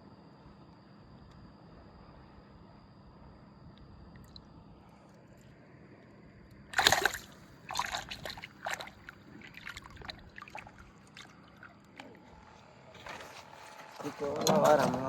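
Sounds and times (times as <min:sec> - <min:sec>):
water dripping: 0:06.8 - 0:11.8
water splashing: 0:06.8 - 0:11.8.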